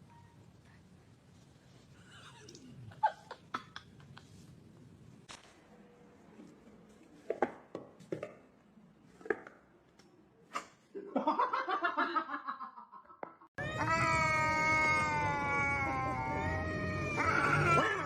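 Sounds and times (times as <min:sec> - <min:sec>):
cat yowling: 0:13.6 - 0:18.0.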